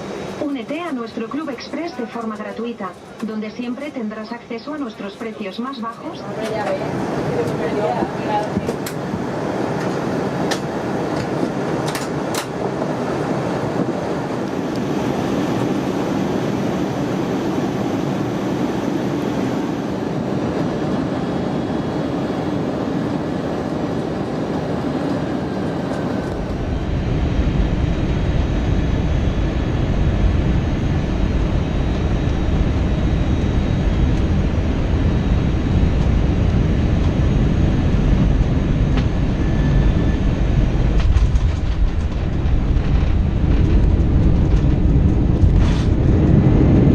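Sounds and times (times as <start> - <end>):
airplane cabin engine rush: 0.0 - 46.9
deep rumble: 12.2 - 46.9.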